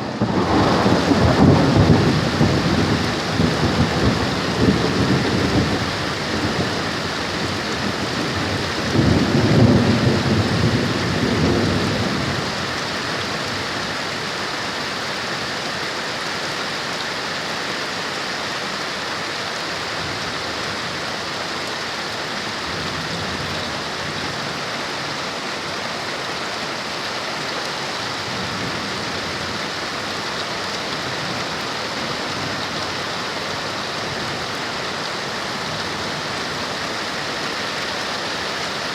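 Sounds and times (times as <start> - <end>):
thunder rumbling: 0.0 - 12.6
heavy rain pouring: 0.0 - 38.9.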